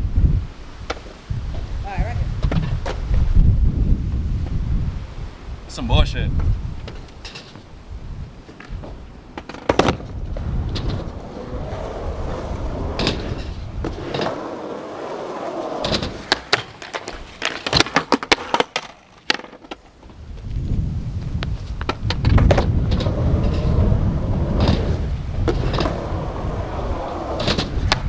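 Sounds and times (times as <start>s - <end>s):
wind rumbling on microphone: 0.0s - 14.5s, 20.0s - 28.0s
skateboard wheels rolling on concrete: 0.0s - 28.0s
skateboard clacks: 8.3s - 20.5s, 21.2s - 28.0s.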